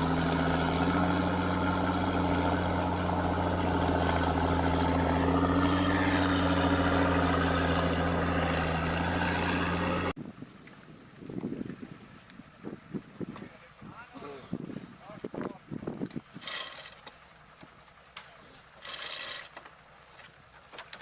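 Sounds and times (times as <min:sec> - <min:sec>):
heavy vehicle engine drone: 0:00.0 - 0:10.2.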